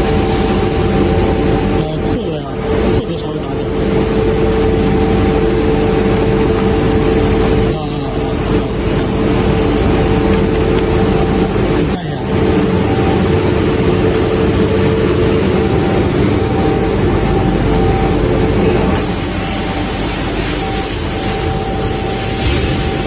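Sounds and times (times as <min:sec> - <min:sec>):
constant hum: 0:00.0 - 0:23.0
sandblasting equipment hissing: 0:19.0 - 0:23.0.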